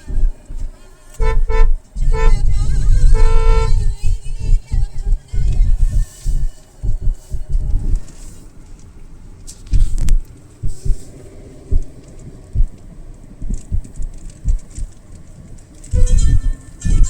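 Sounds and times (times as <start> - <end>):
low thumps: 0.0 - 8.3, 8.9 - 17.0
car road noise rumbling: 0.0 - 17.0.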